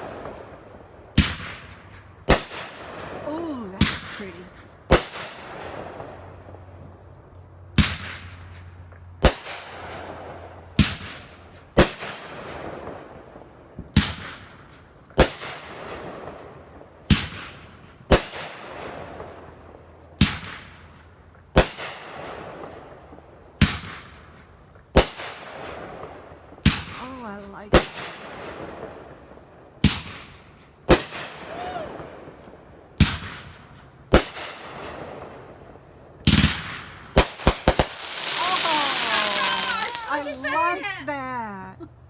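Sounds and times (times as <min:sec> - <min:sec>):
firework bangs: 0:00.0 - 0:06.6, 0:07.8 - 0:08.6, 0:09.2 - 0:19.6, 0:20.2 - 0:41.4
firework crackle: 0:36.2 - 0:41.4.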